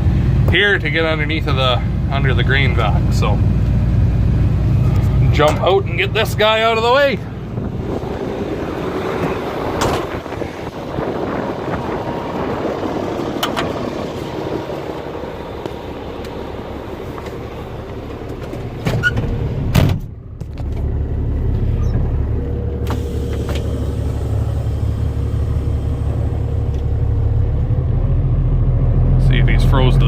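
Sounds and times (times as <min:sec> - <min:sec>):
truck engine starting and idling: 0:00.0 - 0:30.0
truck door banging shut: 0:09.2 - 0:10.4, 0:18.7 - 0:20.1.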